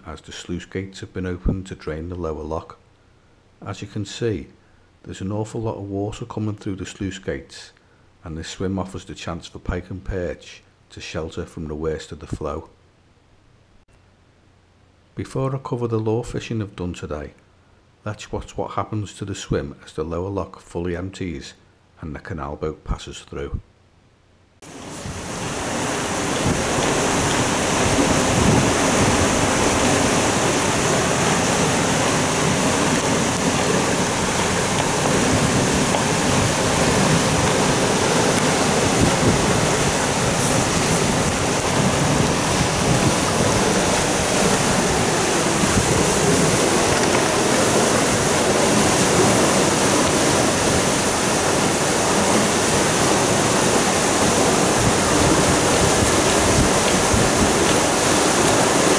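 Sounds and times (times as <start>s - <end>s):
water rushing through sluices: 24.6s - 58.9s.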